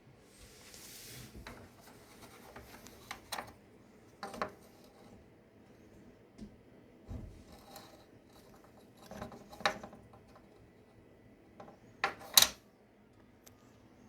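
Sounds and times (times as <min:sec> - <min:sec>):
metal model clicking and clattering: 0:07.6 - 0:10.4, 0:11.6 - 0:12.6.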